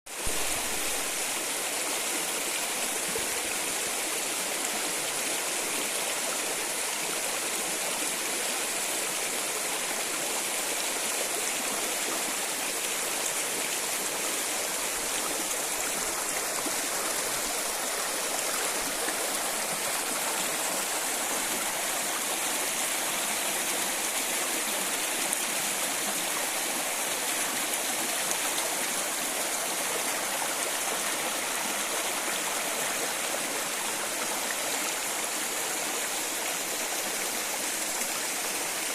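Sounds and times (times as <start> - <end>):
stream rushing: 0.1 - 38.9.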